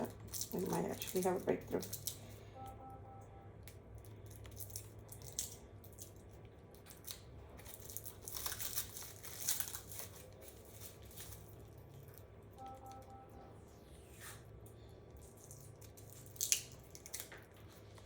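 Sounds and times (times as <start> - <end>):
plastic film crinkling: 0.0 - 2.3, 6.8 - 12.2.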